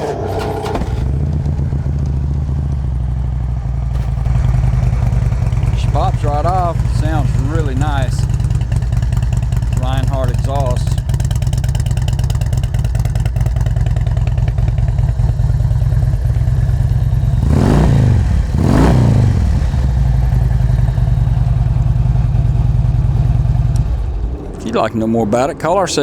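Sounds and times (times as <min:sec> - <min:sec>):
motorcycle engine idling: 0:00.0 - 0:26.0
motorcycle throttle blips: 0:00.0 - 0:26.0.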